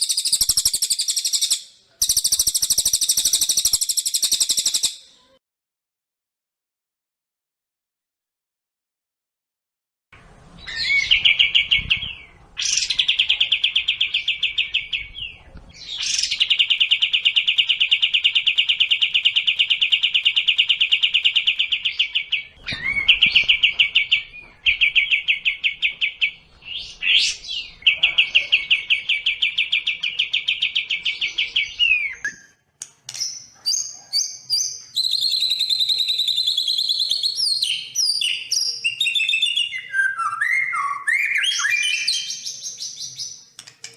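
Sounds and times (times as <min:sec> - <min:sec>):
songbird rapid trills: 0:00.0 - 0:04.9
bird whistled notes: 0:00.0 - 0:05.0, 0:34.5 - 0:42.3.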